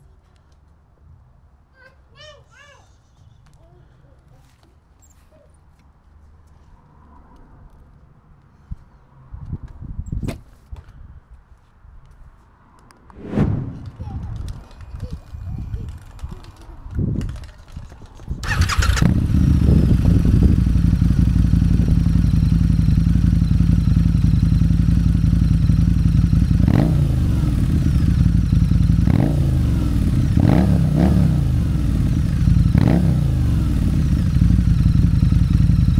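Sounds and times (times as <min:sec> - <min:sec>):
motorcycle engine idling and revving: 0:14.2 - 0:35.9.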